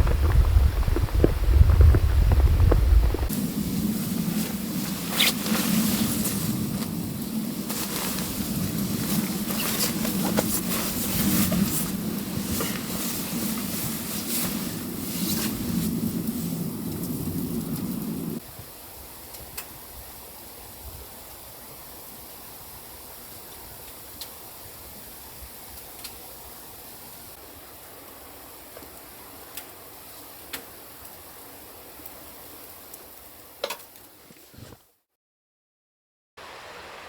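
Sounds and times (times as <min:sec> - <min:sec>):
stream rushing: 0:36.4 - 0:37.0.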